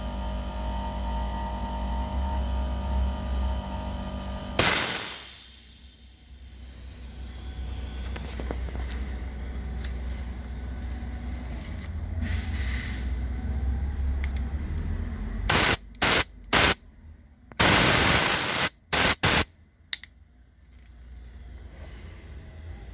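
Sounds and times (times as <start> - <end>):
air compressor humming: 0.0 - 12.4, 15.5 - 16.8, 17.5 - 19.5
compressed air hissing blasts: 4.6 - 6.1, 15.5 - 16.8, 17.6 - 19.5.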